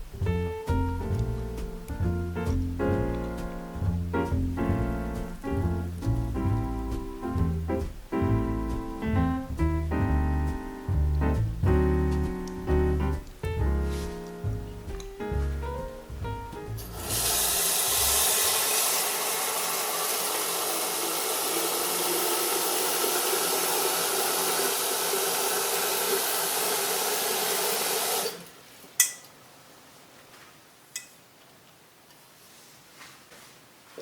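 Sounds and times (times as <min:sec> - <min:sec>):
water running from a tap: 0:16.8 - 0:28.4.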